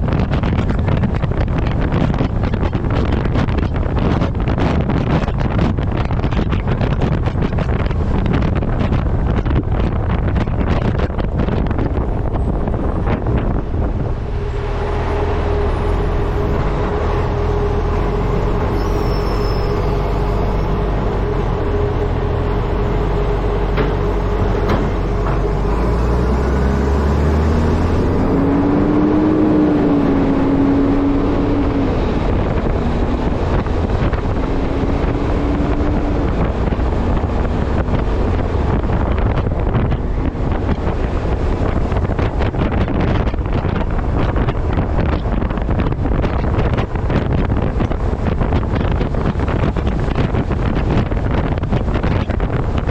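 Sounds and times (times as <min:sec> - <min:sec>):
truck engine drone: 0:00.0 - 0:52.9
wind buffeting camera: 0:00.0 - 0:52.9
wavering whine: 0:11.6 - 0:44.5.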